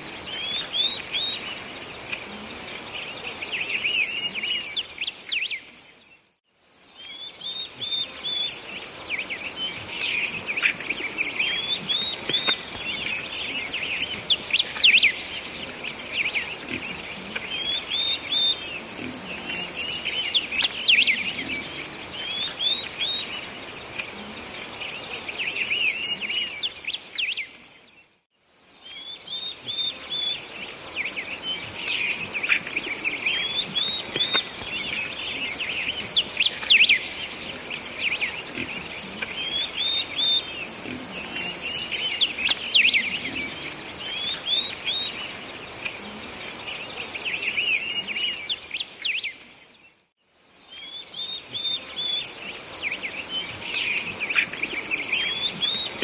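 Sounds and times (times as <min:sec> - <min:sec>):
faint steady hiss: 0:00.0 - 0:56.0
birds chirping: 0:07.0 - 0:28.2, 0:28.9 - 0:49.4, 0:50.8 - 0:56.0.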